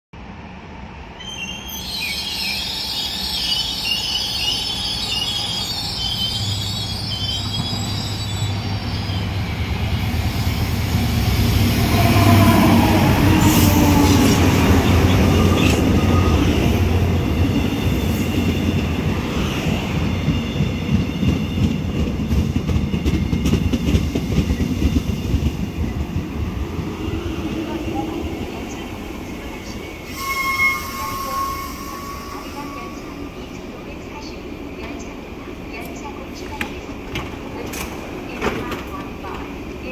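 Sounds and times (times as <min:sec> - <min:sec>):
diesel locomotive engine: 0:00.2 - 0:39.9
train wheels squealing: 0:01.2 - 0:10.7, 0:11.9 - 0:23.8, 0:29.7 - 0:33.3.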